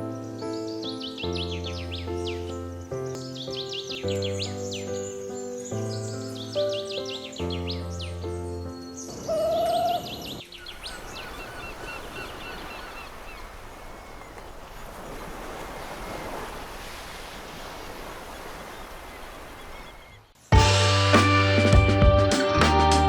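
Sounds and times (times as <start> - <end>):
bird chirping: 0.0 - 15.0, 18.4 - 20.4.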